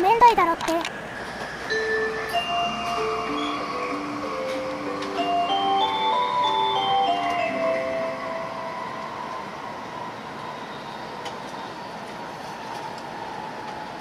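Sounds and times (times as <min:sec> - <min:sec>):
train rumbling inside carriage: 0:00.0 - 0:14.0
melodic chime: 0:01.7 - 0:09.4.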